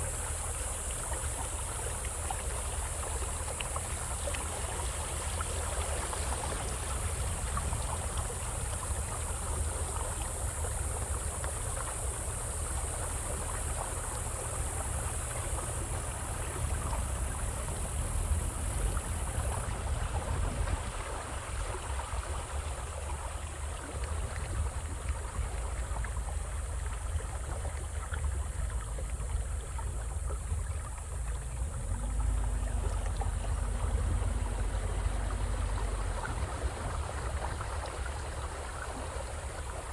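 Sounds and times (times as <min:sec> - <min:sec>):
flowing river water: 0:00.0 - 0:39.9
steady high hiss: 0:07.0 - 0:21.3.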